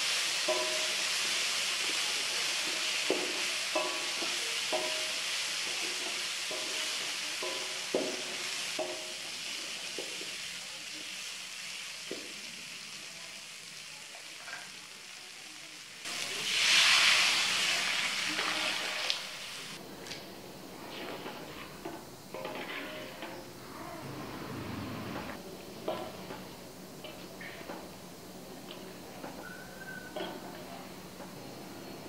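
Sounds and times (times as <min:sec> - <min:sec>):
spice paste sizzling in a wok: 0:00.0 - 0:24.1, 0:25.4 - 0:32.0
spatula tapping on pan: 0:02.7 - 0:05.2, 0:06.5 - 0:09.2.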